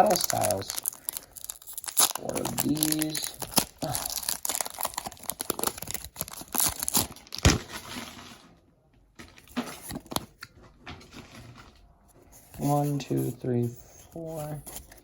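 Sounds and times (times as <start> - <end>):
cards rustling: 0.0 - 8.1, 12.2 - 15.0
foil pack tearing and crinkling: 0.0 - 8.4.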